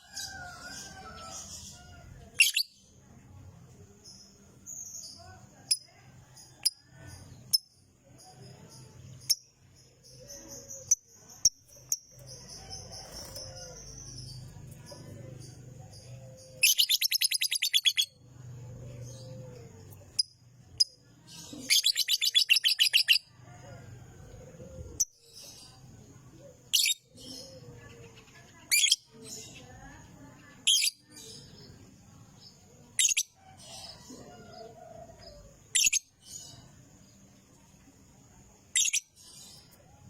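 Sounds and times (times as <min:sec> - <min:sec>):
sharp bird chirps: 0:09.2 - 0:18.2, 0:19.9 - 0:23.3
lovebird trilling: 0:16.6 - 0:18.2.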